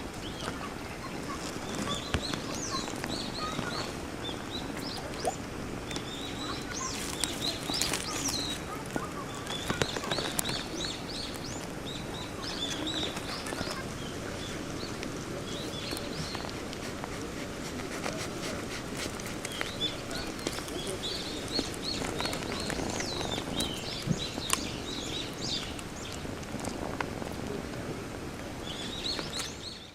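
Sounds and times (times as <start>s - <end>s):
small birds chirping: 0.2s - 27.8s, 28.6s - 29.9s
faint clicks: 4.8s - 11.7s.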